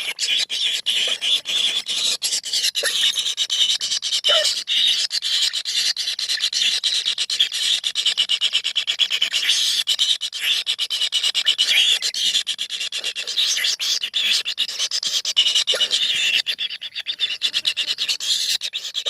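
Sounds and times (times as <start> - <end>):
chicks begging buzzy chorus: 0.0 - 3.6, 15.6 - 19.0.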